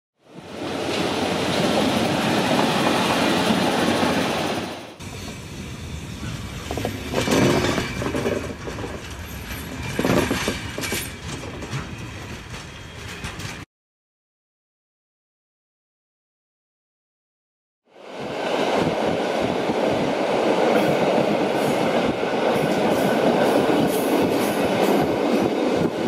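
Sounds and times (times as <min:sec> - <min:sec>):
train rushing on rails: 0:00.2 - 0:13.7, 0:17.9 - 0:26.0
wheels clicking over rail joints: 0:06.2 - 0:13.6.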